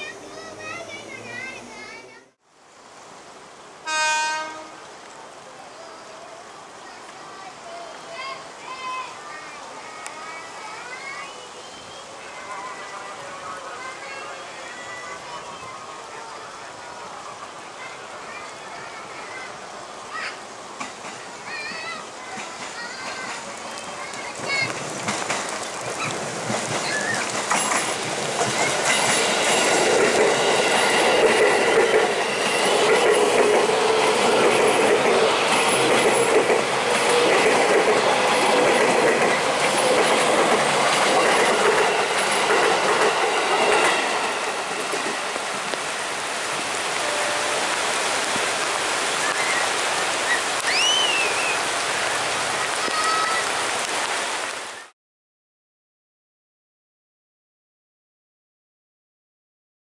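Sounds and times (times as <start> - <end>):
train wheels clattering: 24.4 - 45.6.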